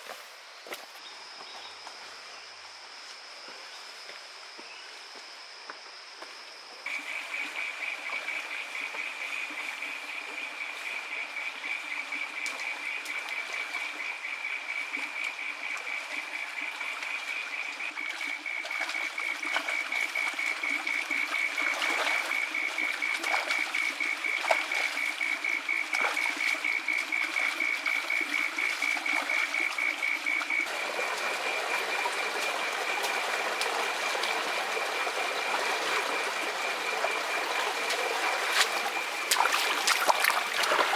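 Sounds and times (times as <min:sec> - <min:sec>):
stream rushing: 0:30.6 - 0:40.9.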